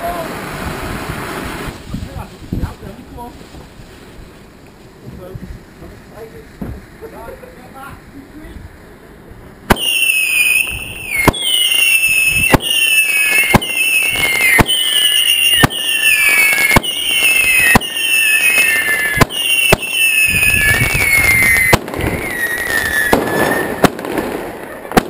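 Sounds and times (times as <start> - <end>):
fireworks bangs: 9.6 - 25.0
falling firework whistle: 9.7 - 25.0.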